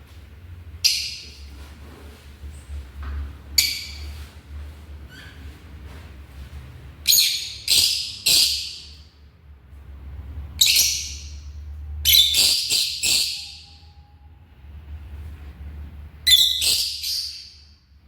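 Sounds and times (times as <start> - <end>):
lovebirds shrill calls: 7.1 - 8.9, 12.1 - 13.7, 16.3 - 17.6.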